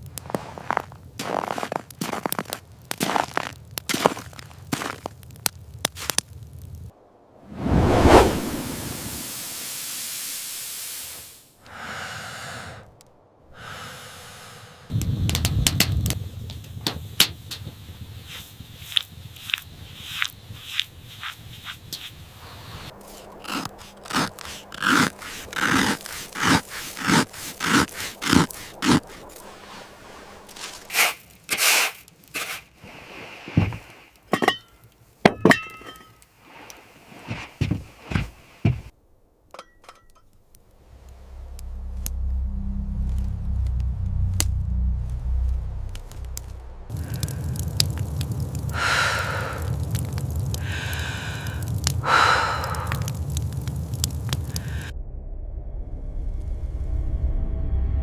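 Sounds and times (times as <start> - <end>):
wind gusts whooshing: 6.8 - 10.5, 12.0 - 31.6, 40.5 - 55.0
soft scraping swishes: 7.5 - 9.3, 21.1 - 34.1.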